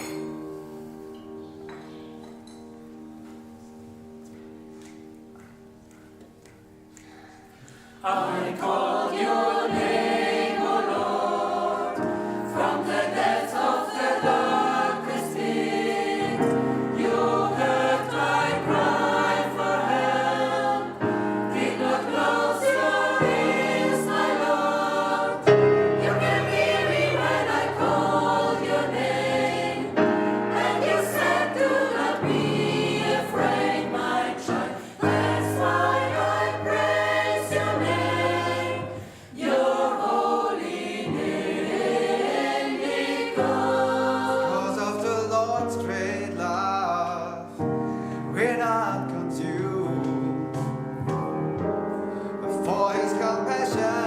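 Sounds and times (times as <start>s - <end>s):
gospel choir singing: 0.0s - 1.2s, 7.4s - 47.6s, 52.6s - 54.0s.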